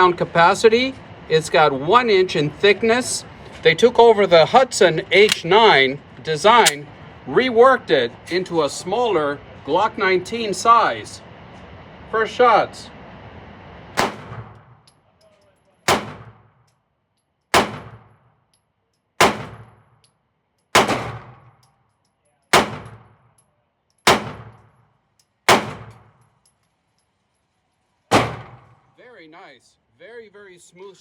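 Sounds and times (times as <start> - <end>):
pistol shots with echo: 14.0 - 14.6, 15.9 - 16.5, 17.5 - 18.2, 19.2 - 19.8, 20.8 - 21.5, 22.5 - 23.1, 24.0 - 24.6, 25.5 - 26.1, 28.1 - 28.9.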